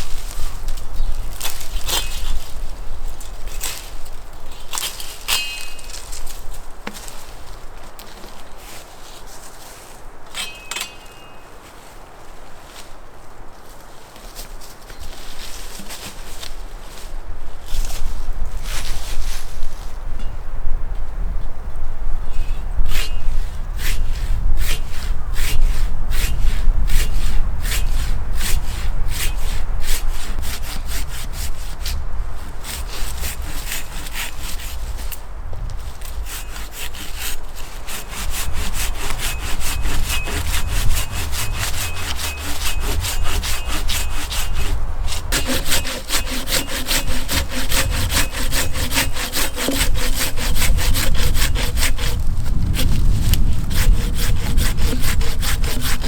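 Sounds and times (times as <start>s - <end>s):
hand saw cutting wood: 0.0s - 7.3s, 10.4s - 11.3s, 22.9s - 32.0s, 32.6s - 35.2s, 35.9s - 56.0s.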